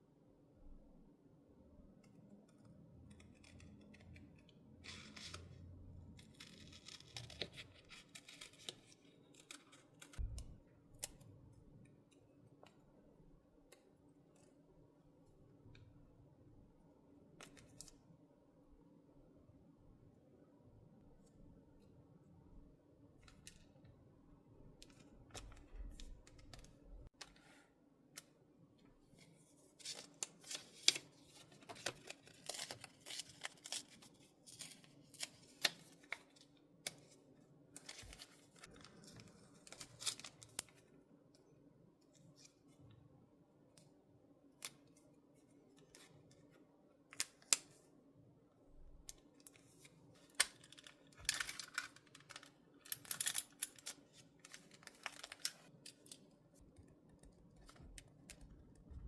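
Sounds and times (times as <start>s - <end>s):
scissors snipping paper: 6.2s - 10.2s.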